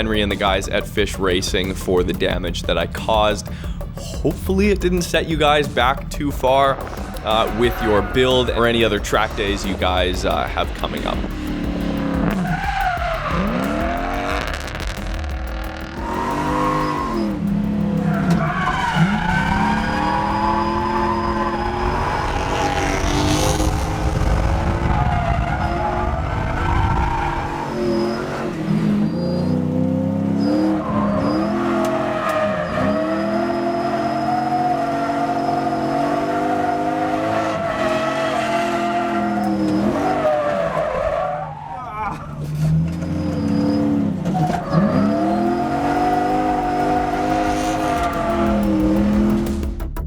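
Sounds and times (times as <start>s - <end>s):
car engine revving: 0.0s - 50.0s
tyres skidding: 0.0s - 50.0s.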